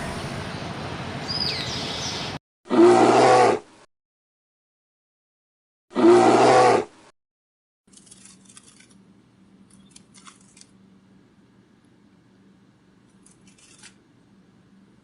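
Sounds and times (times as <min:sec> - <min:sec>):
farm animal calling loudly: 0:06.0 - 0:06.9.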